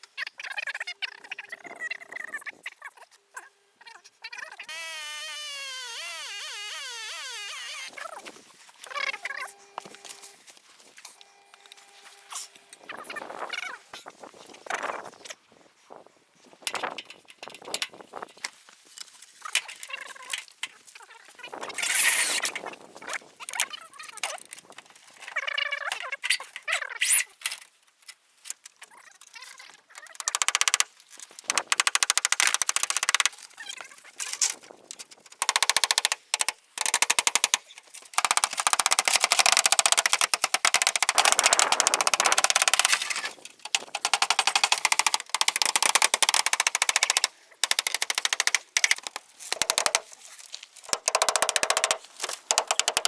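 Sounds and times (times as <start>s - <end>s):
rapid clatter of knocks: 38.2s - 50.1s, 50.8s - 53.0s.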